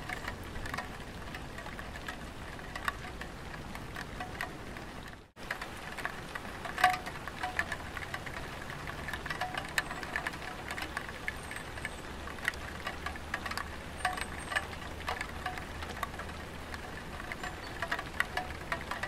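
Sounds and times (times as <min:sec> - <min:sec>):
rain patter on a tiled roof: 0:00.0 - 0:19.0
ringing drop ticks: 0:06.7 - 0:16.1.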